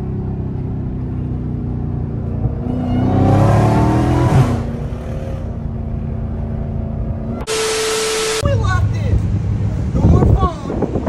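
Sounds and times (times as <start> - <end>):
car engine cruising: 0.0 - 11.0.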